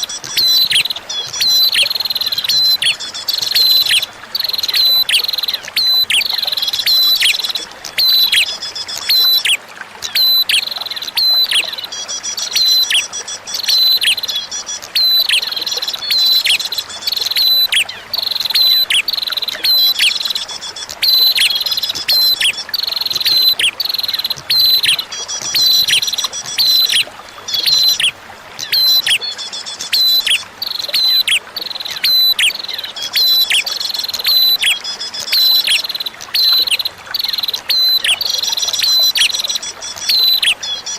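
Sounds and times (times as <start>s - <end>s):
trickle of running water: 0.0s - 40.9s
buzzy bird trill: 17.2s - 28.1s
bird calling sharp notes: 20.8s - 32.6s.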